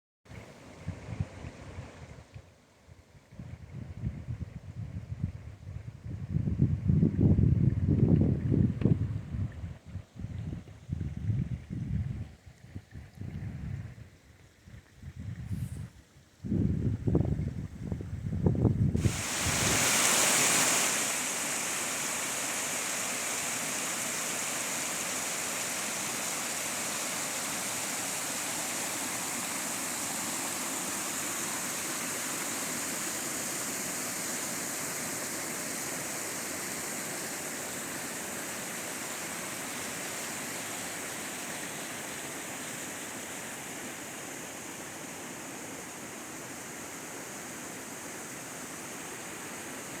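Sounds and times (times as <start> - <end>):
waterfall rushing: 19.0 - 50.0.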